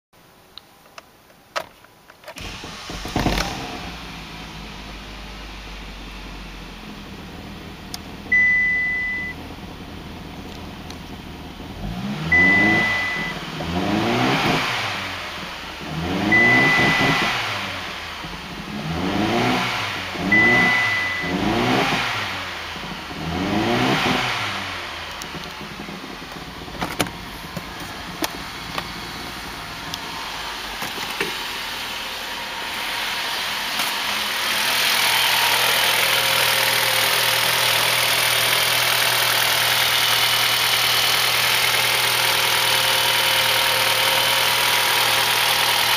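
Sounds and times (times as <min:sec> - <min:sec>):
car engine revving and idling: 0:02.4 - 0:45.9
short high beeps: 0:08.3 - 0:09.4, 0:12.3 - 0:13.4, 0:16.3 - 0:17.4, 0:20.3 - 0:21.6.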